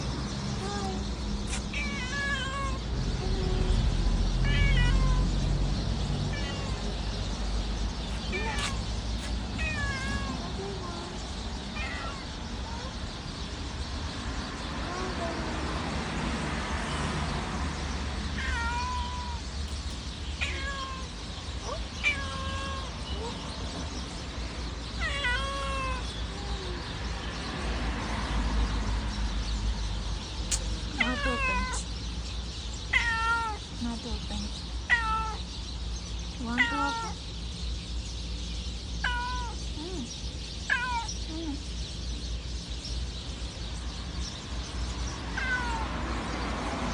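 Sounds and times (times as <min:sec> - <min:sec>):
cat meowing: 0:00.5 - 0:05.5, 0:06.1 - 0:07.4, 0:08.0 - 0:13.0, 0:18.3 - 0:19.5, 0:20.4 - 0:23.5, 0:25.0 - 0:27.0, 0:30.5 - 0:31.9, 0:32.9 - 0:33.8, 0:34.8 - 0:35.5, 0:36.4 - 0:37.2, 0:39.0 - 0:40.1, 0:40.7 - 0:41.6, 0:45.3 - 0:46.0.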